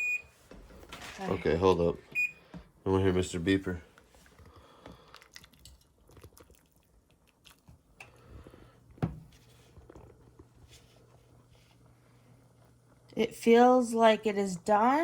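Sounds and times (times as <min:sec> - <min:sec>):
faint chewing: 0:04.0 - 0:08.8.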